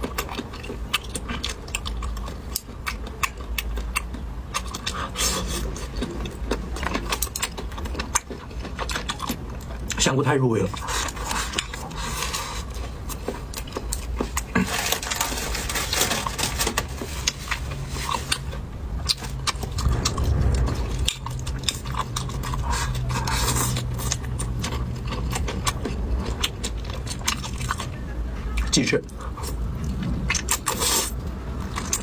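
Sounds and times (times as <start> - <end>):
chewing with wet mouth noises: 0.0 - 15.4, 16.6 - 32.0.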